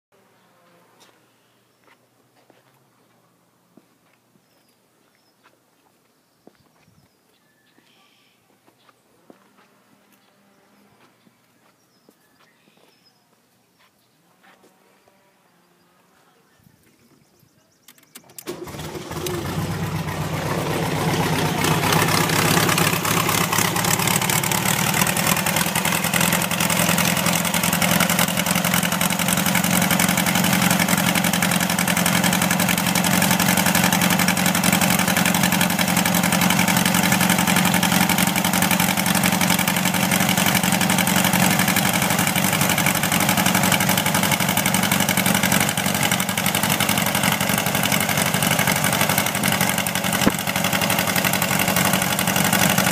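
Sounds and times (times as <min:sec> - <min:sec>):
engine starting and idling: 0:17.9 - 0:52.9.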